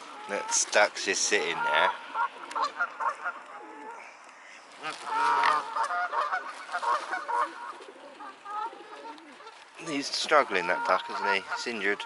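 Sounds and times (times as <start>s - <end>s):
waterfowl honking: 0.0s - 12.0s.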